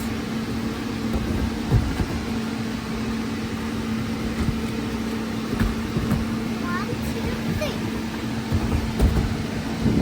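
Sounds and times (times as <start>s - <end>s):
electric air blower hum: 0.0s - 10.0s
thuds of child bouncing: 1.1s - 2.4s, 5.4s - 7.8s, 8.4s - 10.0s.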